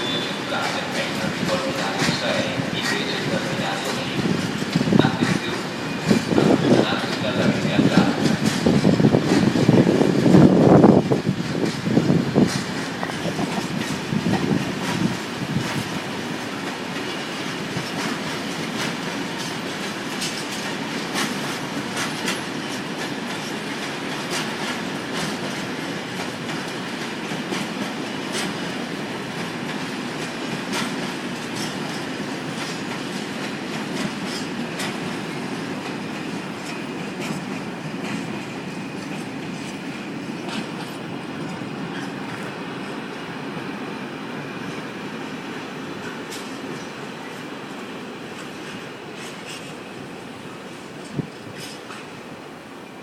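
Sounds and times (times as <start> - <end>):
freight train wheels rumbling: 0.0 - 53.0
sharp clacks: 0.6 - 4.0.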